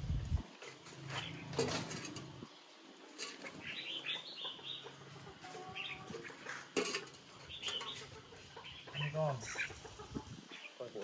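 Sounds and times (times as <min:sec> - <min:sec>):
bird chirping: 0:03.4 - 0:06.7, 0:07.3 - 0:11.0.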